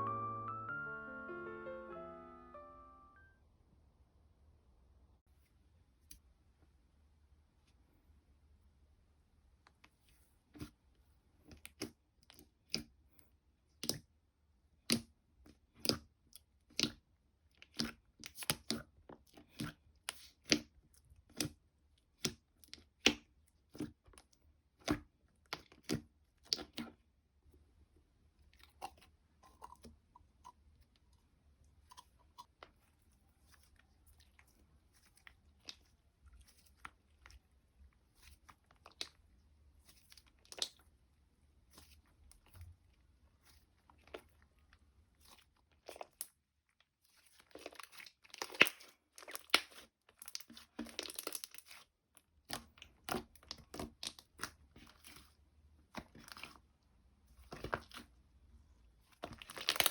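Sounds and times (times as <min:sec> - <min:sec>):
slime popping and crackling: 0:47.5 - 0:51.8, 0:59.2 - 0:59.9.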